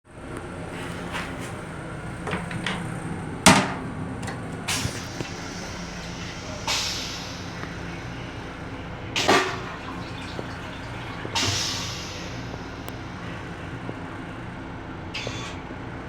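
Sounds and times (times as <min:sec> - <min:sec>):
railcar rumble and hum: 0:00.1 - 0:16.0
door and latch clunking: 0:02.2 - 0:04.6
door banging: 0:02.2 - 0:04.6.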